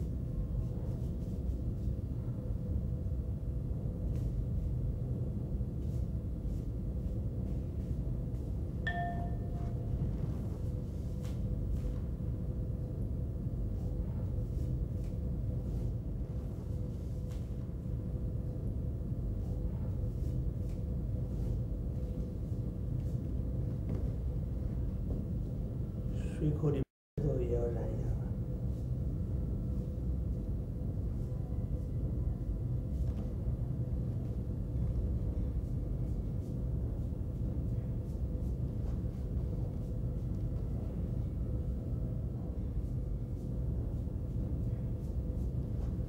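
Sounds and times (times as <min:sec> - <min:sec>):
steady low hum: 0:00.0 - 0:46.0
short ringing ding: 0:08.9 - 0:09.9.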